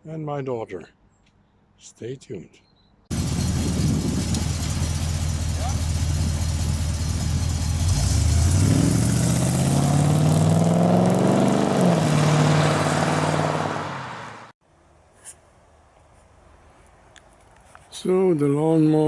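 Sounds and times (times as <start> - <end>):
engine idling and revving: 3.1 - 14.5.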